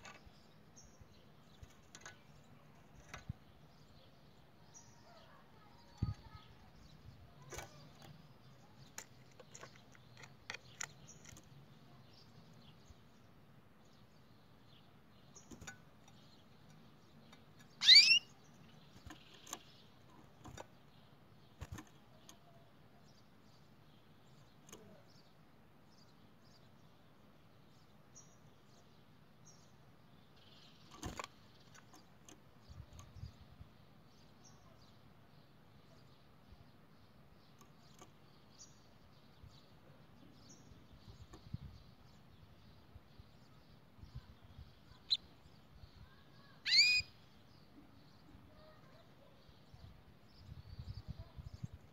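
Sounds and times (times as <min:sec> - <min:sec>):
sharp upward-sweeping bird chirp: 0:17.7 - 0:18.4, 0:46.4 - 0:47.2.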